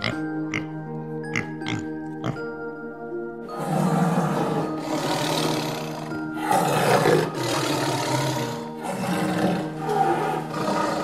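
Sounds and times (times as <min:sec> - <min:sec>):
background music with held notes: 0:00.0 - 0:11.0
tiger roaring: 0:03.5 - 0:11.0.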